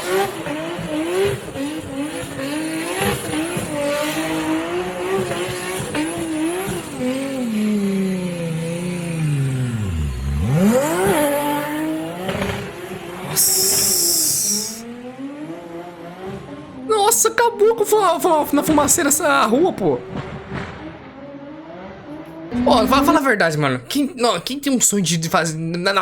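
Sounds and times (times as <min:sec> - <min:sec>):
turbocharged engine revving: 0:00.0 - 0:16.9, 0:18.4 - 0:23.5
tyre squeal: 0:13.3 - 0:14.8
loud hiss: 0:13.4 - 0:14.8.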